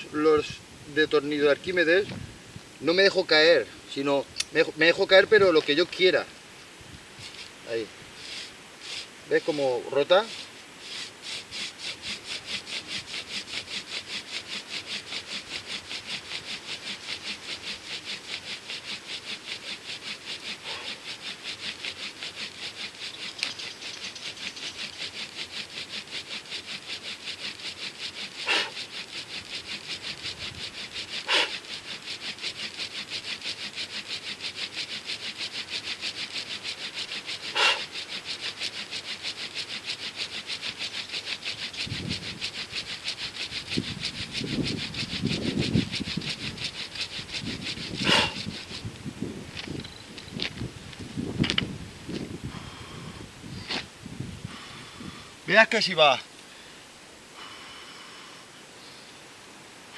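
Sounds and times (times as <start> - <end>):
wooden spindle rasping: 2.8 - 6.3, 7.2 - 56.2.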